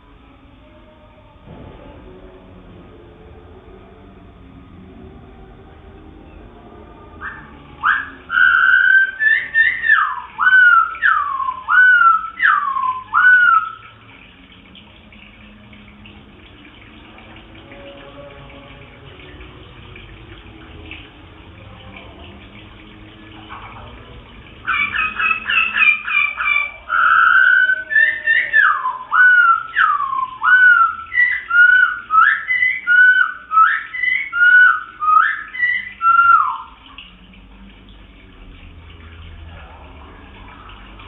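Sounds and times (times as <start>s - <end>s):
songbird whistling: 7.2s - 14.0s, 24.7s - 36.8s.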